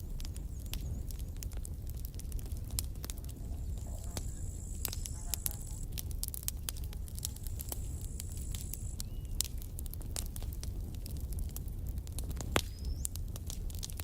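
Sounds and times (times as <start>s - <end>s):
wood campfire crackling: 0.0s - 14.0s
thin high whistle: 4.0s - 5.8s.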